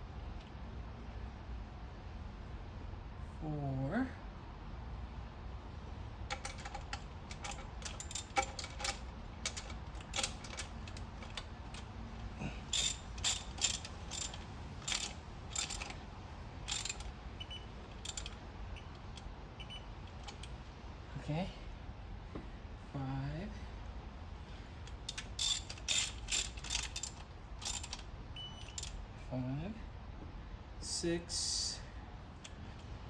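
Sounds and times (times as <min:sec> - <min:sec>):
hand ratchet clicking: 0:06.3 - 0:16.0, 0:16.7 - 0:17.2, 0:17.9 - 0:18.4, 0:24.9 - 0:29.0.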